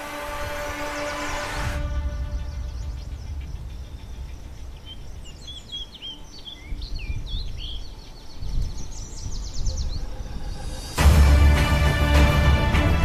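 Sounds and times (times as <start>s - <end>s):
bird trill rising in pitch: 0.0s - 11.0s
wild birds chirping: 0.0s - 13.0s
low background rumble: 1.8s - 6.0s.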